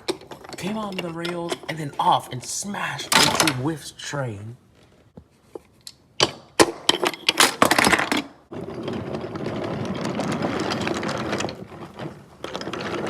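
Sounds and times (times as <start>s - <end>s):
toy trains crashing: 6.6s - 11.7s.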